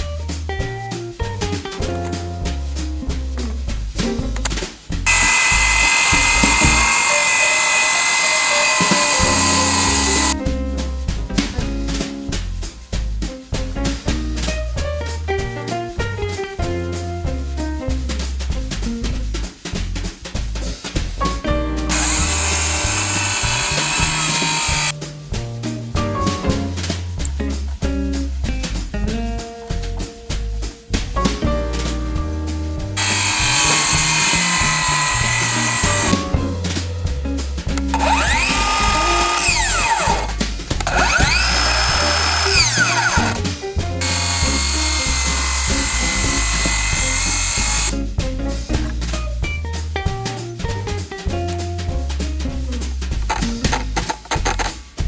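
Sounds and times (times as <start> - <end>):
music with drums and bass: 0.0 - 55.0
circular saw cutting wood: 5.0 - 10.4, 21.9 - 25.0, 33.0 - 36.7, 37.8 - 48.0, 53.3 - 54.8.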